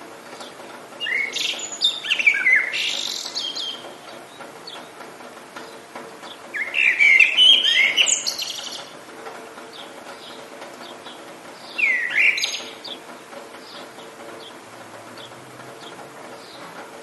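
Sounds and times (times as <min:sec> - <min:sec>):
songbird warbling song: 0:00.4 - 0:05.0, 0:05.6 - 0:08.9, 0:09.7 - 0:14.6.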